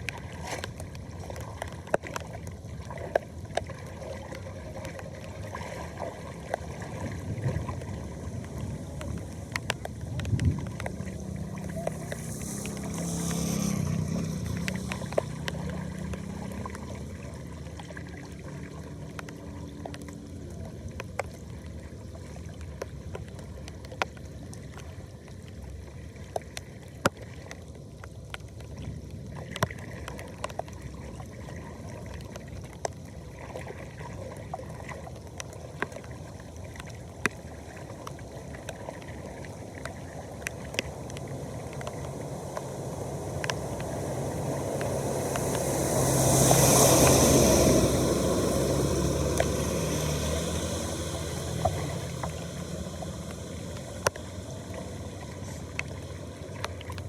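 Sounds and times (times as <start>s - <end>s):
flood water rushing down a drain: 0.0s - 57.0s
sharp clicks and pops: 8.4s - 17.3s, 51.4s - 54.9s.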